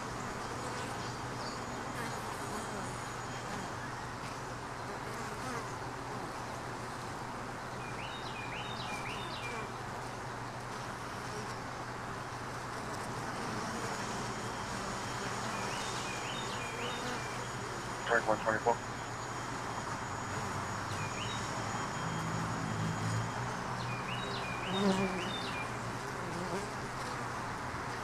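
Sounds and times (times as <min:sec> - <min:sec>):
honey bees buzzing: 0:00.0 - 0:03.9, 0:12.5 - 0:28.0.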